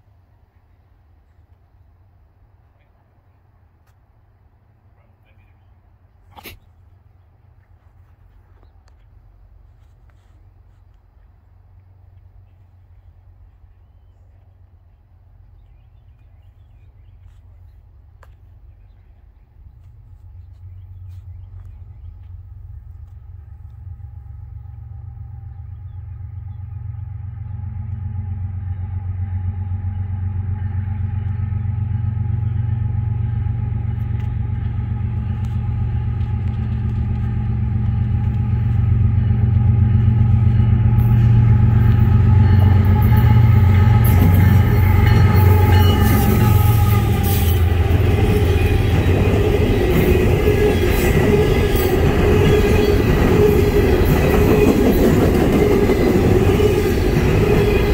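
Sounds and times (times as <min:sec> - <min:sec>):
diesel locomotive engine rumble: 0:00.0 - 0:57.9
train wheels on rails: 0:13.6 - 0:57.9.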